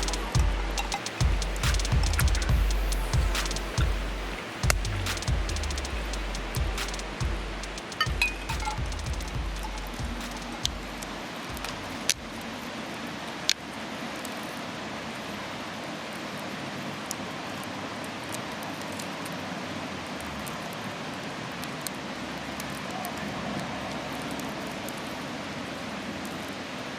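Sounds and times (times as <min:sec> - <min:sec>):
campfire burning with hiss: 0:00.0 - 0:12.6.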